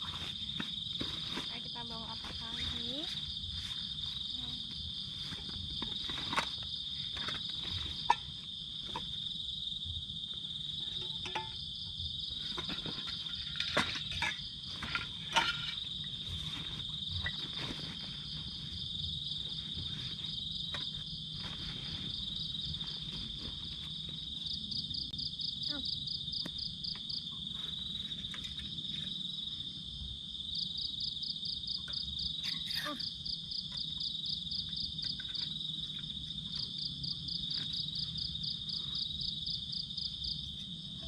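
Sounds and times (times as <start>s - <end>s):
high-pitched insect chorus: 0.0s - 41.0s.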